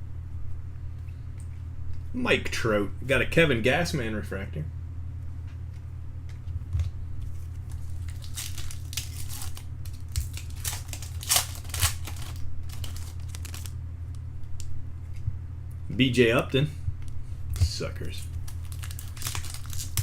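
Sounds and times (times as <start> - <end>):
steady electrical hum: 0.0 - 20.0
foil wrappers crinkling and tearing: 7.3 - 13.8, 18.0 - 20.0.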